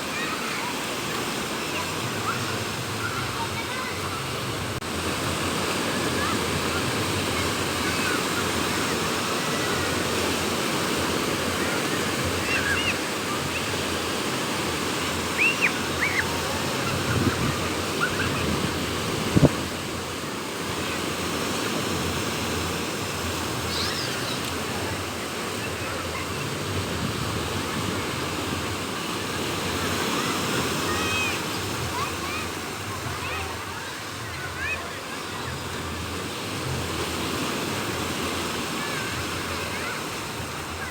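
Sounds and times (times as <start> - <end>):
sea waves washing on beach: 0.0 - 40.9
strong wind: 15.7 - 21.0, 25.8 - 29.3.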